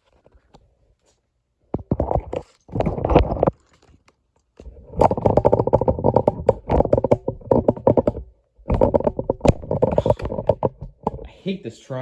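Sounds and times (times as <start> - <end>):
plastic tripod clicking and rattling: 1.8 - 11.3.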